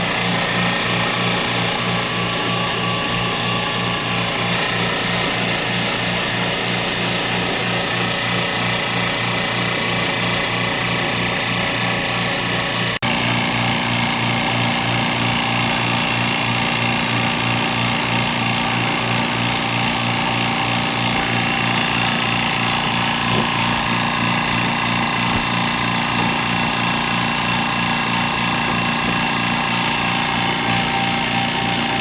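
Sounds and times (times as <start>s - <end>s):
machine pulsing with whine: 12.6s - 32.0s.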